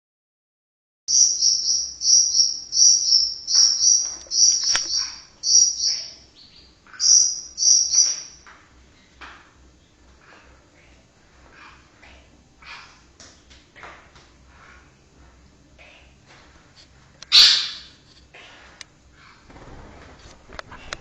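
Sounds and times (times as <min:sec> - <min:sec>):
soft bird chirps: 0:01.1 - 0:08.4
bird singing buzzy trills: 0:01.1 - 0:08.5.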